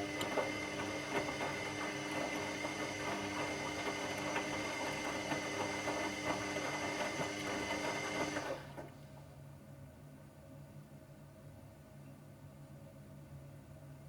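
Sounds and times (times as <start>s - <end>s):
washing machine motor whine: 0.0s - 9.0s.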